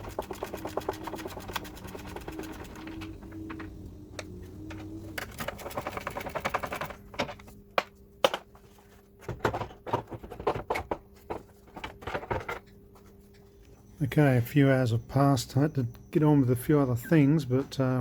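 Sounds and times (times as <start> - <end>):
small motor running: 0.0 - 3.8
scattered clicks and knocks: 0.0 - 8.5.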